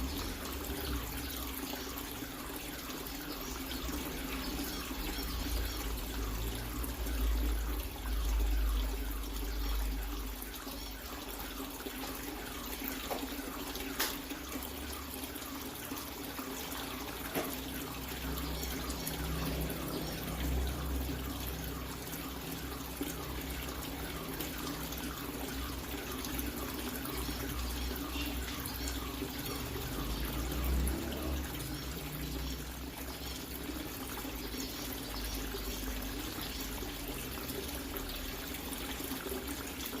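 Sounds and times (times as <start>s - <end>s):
water splashing into tank: 0.0s - 40.0s.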